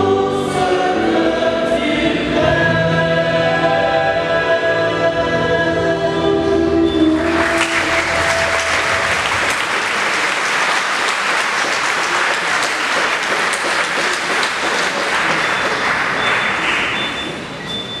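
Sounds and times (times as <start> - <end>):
choir holding a note: 0.0 - 17.2
congregation applauding: 7.0 - 18.0.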